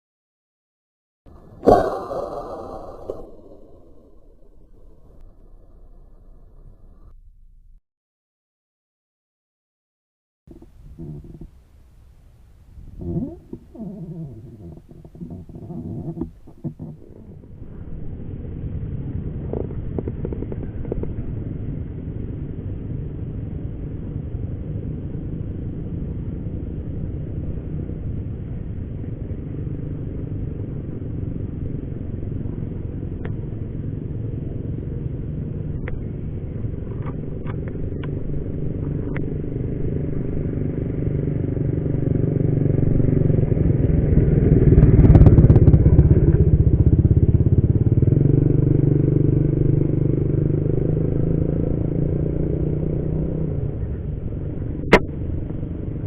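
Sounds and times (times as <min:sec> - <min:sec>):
vehicle engine rumble: 0:01.3 - 0:07.8, 0:10.5 - 0:56.0.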